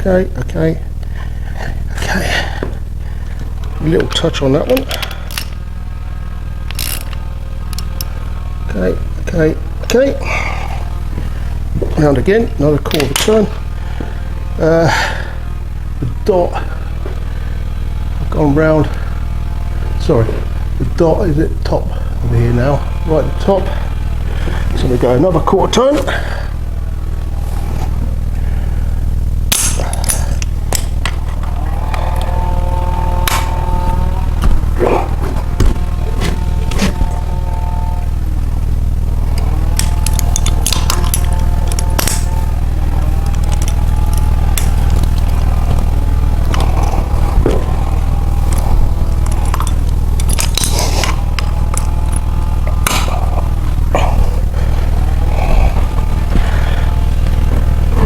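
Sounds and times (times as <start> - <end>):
held humming tone: 0.0 - 58.0
steady low hum: 0.0 - 58.0
hand tools clicking on metal: 39.4 - 42.5, 43.2 - 45.8, 48.5 - 53.1.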